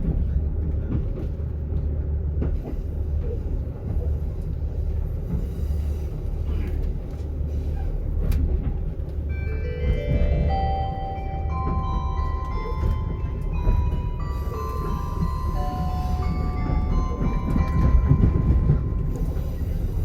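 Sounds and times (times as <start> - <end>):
railcar low rumble: 0.0 - 20.0
bell-like onboard chime: 9.3 - 20.0.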